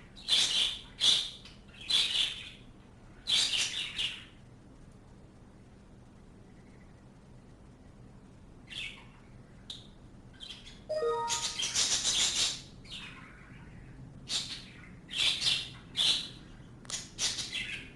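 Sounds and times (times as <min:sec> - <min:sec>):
small birds chirping: 0:00.0 - 0:04.5, 0:06.2 - 0:17.9
harsh scratchy bird calls: 0:00.2 - 0:02.5.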